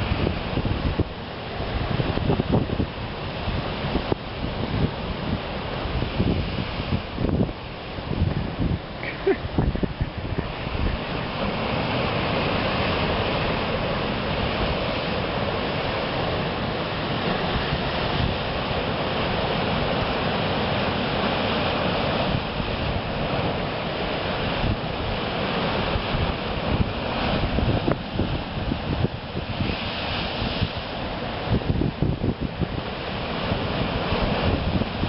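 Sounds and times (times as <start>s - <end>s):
ocean surf breaking: 0.0s - 35.0s
wind buffeting microphone: 0.0s - 35.0s.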